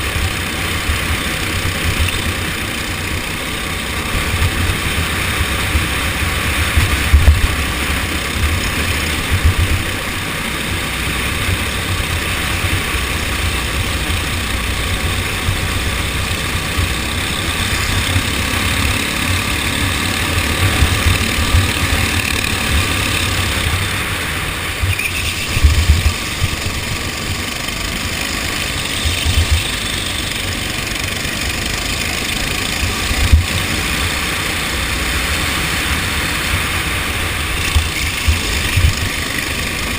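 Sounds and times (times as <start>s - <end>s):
kart engine running: 0.0s - 39.9s.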